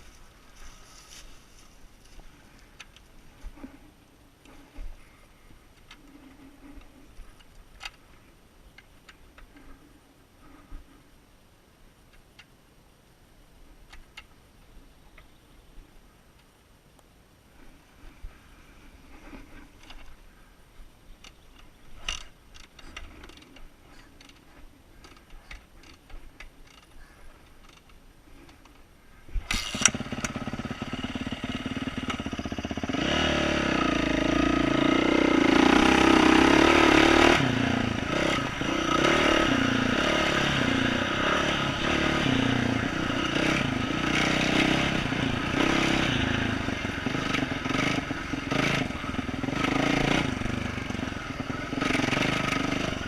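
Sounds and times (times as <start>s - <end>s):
motorcycle engine revving: 29.5s - 53.0s.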